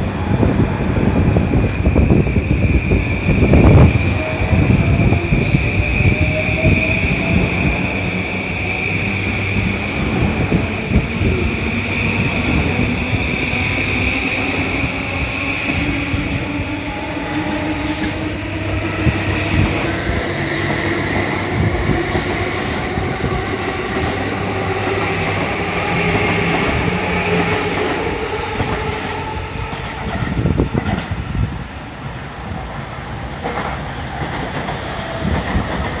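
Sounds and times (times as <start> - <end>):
train wheels clacking on rail joints: 17.3 - 31.2.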